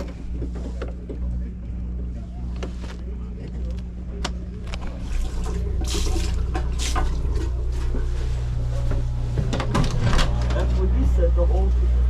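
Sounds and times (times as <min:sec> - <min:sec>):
boat engines idling: 0:03.2 - 0:11.7
water splashing and trickling: 0:04.9 - 0:07.5.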